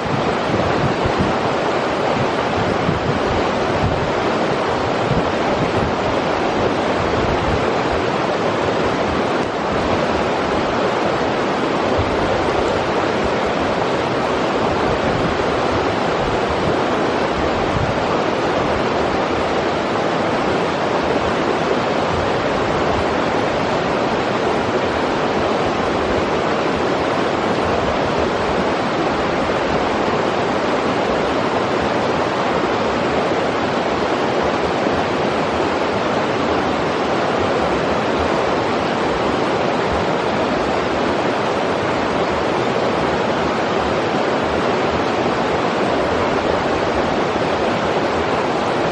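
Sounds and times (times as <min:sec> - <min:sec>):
river water rushing over rocks: 0:00.0 - 0:48.9.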